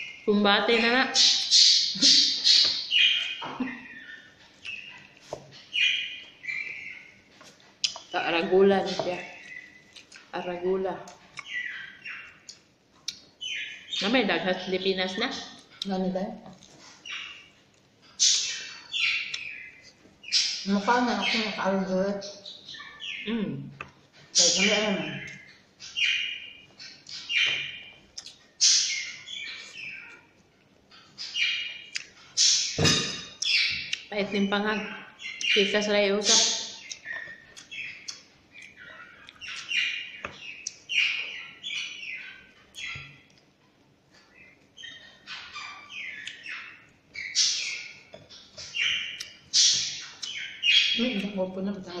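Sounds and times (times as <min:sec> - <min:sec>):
bird chirping: 0:00.0 - 0:52.0.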